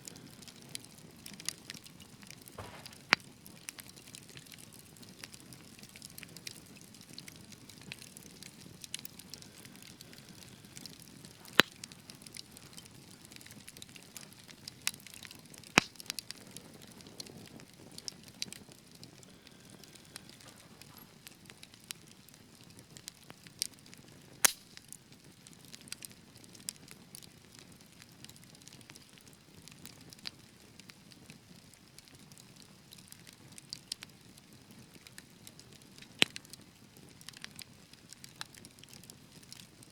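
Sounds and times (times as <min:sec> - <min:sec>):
fire crackling: 0:00.0 - 0:39.9
loud sharp pops: 0:02.6 - 0:03.3, 0:15.8 - 0:16.0.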